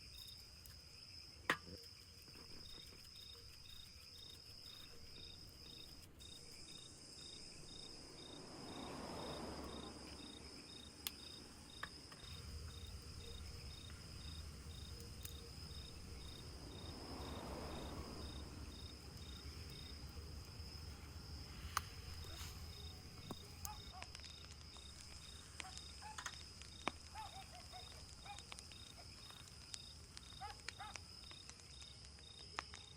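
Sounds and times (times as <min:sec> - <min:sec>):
crickets trilling: 0:00.0 - 0:32.9
pulsing insect chirp: 0:00.0 - 0:32.9
rustling noise: 0:21.3 - 0:23.6.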